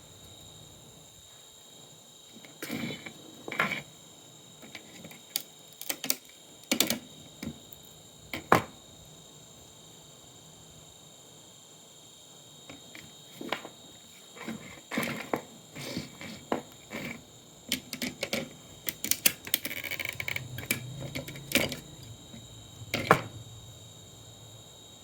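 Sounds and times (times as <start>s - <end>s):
clicks and knocks of hard parts: 4.7s - 7.6s, 17.7s - 21.9s, 22.9s - 23.3s.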